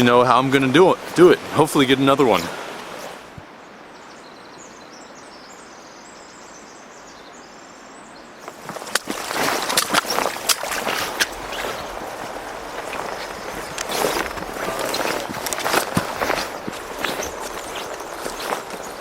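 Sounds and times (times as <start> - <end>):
river rushing: 0.0 - 3.9, 8.4 - 19.0
faint high twittering: 8.4 - 19.0
footsteps on river gravel: 8.4 - 19.0.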